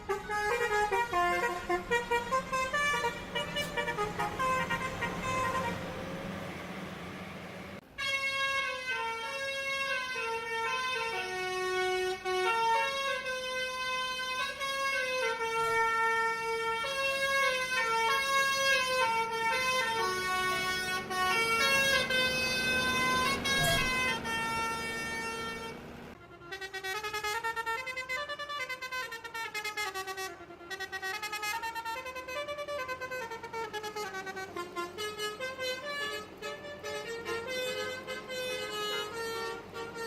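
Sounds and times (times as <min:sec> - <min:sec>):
musical vehicle horn melody: 0:00.0 - 0:40.0.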